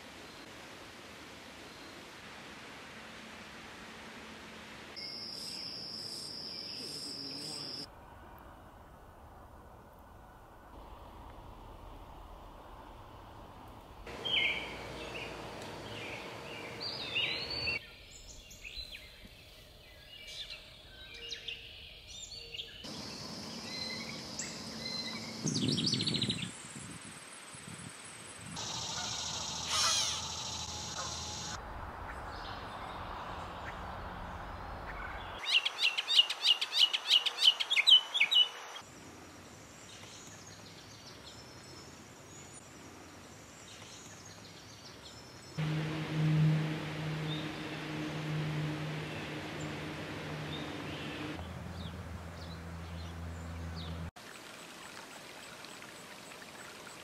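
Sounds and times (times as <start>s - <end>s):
fast run of sharp bird notes: 14.1s - 17.8s, 45.6s - 53.1s
wild birds calling and singing: 14.1s - 26.5s.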